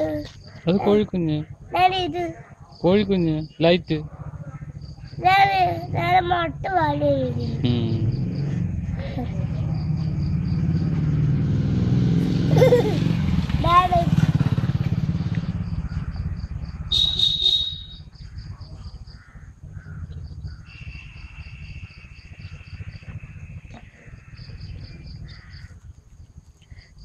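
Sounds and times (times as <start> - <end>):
low rumble: 2.6 - 25.8
high bird chirps: 15.4 - 25.8
sharp bird call: 16.9 - 18.5.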